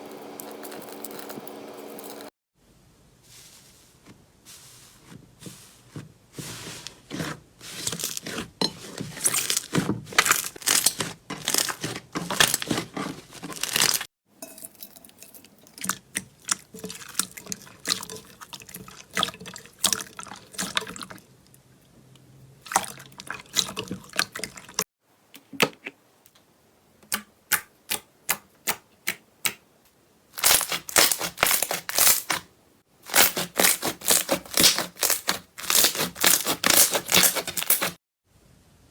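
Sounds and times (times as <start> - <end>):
slime squelching and popping: 30.4 - 32.4, 33.1 - 37.9.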